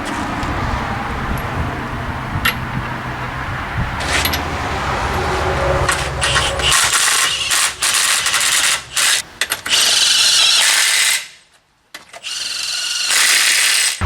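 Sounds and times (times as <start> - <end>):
impact wrench running: 4.0 - 4.6, 5.9 - 10.9.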